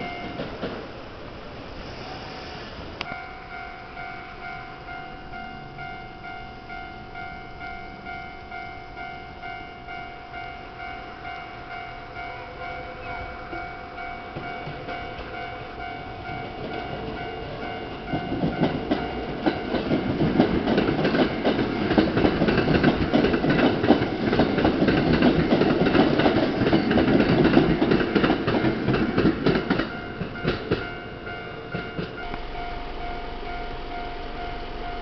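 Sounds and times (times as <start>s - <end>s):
crossing warning bell ringing: 0.0s - 0.6s, 3.0s - 35.0s
train wheels clattering: 13.2s - 33.2s.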